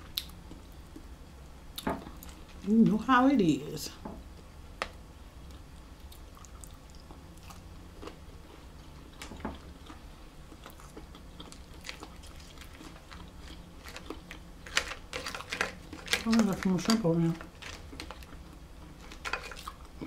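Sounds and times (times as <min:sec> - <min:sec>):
steady low hum: 0:00.0 - 0:20.0
shrimp being chewed: 0:05.4 - 0:16.4.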